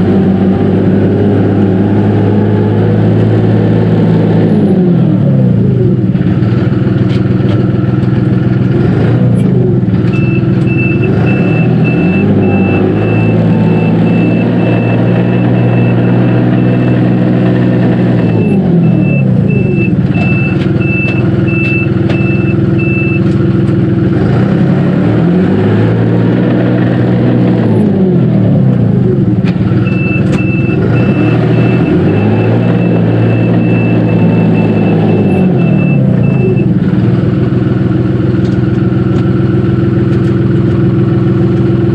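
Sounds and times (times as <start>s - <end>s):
tractor diesel engine running: 0.0s - 41.9s
reverse warning beeper: 10.1s - 23.3s, 29.8s - 36.7s.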